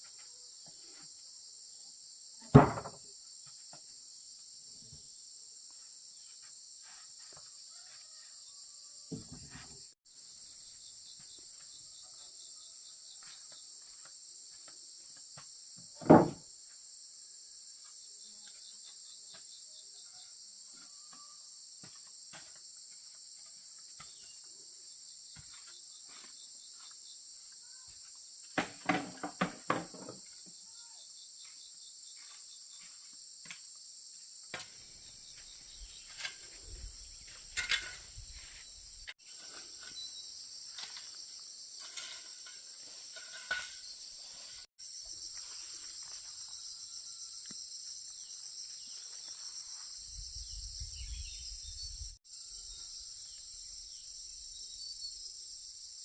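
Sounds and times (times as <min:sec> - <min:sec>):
insects chorus: 0:00.0 - 0:56.0
loud knocks: 0:02.6 - 0:03.0.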